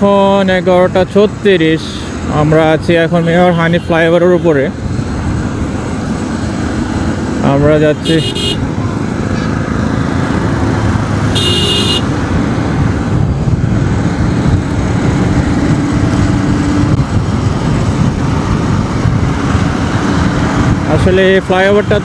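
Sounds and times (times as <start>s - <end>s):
motorcycle cruising: 0.0s - 22.0s
road and wind noise: 0.0s - 22.0s.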